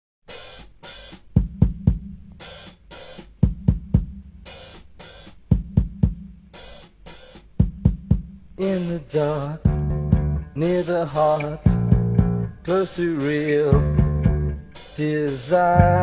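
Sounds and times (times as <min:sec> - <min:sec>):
bass drum beats: 0:00.6 - 0:16.0
hissing cymbal strokes: 0:14.6 - 0:15.7.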